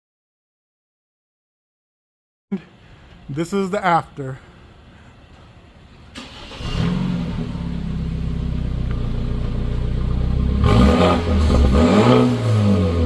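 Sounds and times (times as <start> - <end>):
car engine idling and revving: 6.2 - 13.0.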